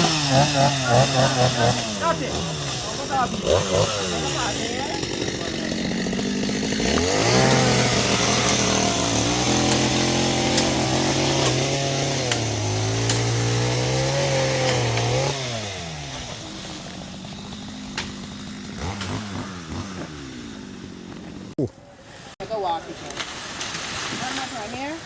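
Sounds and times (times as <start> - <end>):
chainsaw revving and idling: 0.0 - 21.6.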